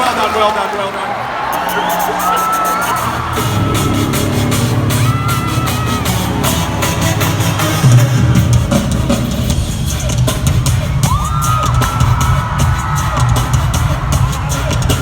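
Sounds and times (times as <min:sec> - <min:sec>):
heavy drums: 0:01.5 - 0:15.0
bass: 0:02.2 - 0:15.0
sustained synth line: 0:02.8 - 0:10.6
live band music: 0:03.0 - 0:15.0.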